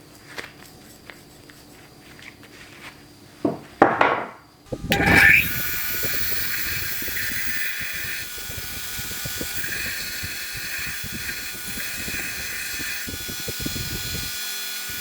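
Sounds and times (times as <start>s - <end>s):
loud scraping strokes: 4.7s - 15.0s
power tool running: 4.7s - 15.0s.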